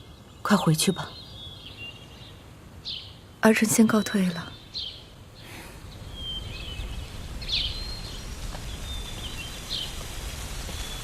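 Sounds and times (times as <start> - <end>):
steady low rumble: 5.1 - 11.0.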